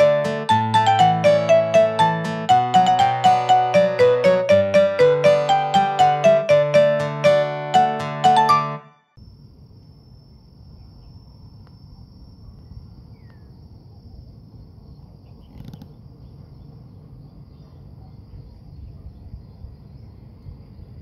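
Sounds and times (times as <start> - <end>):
high-pitched insect trill: 9.2 - 15.0.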